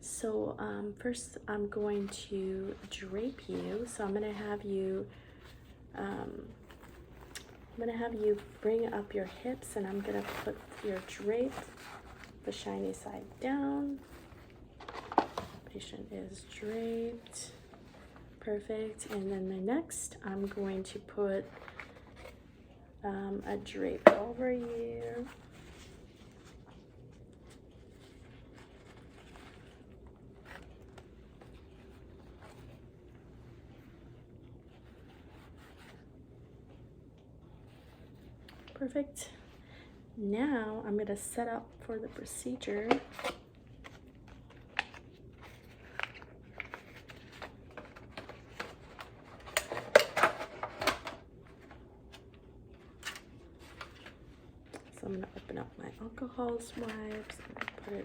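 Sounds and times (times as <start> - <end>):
light clicks and crinkles: 1.4 - 39.9, 41.1 - 58.0
paper drape rustling: 1.7 - 19.4, 23.4 - 36.1, 42.1 - 58.0.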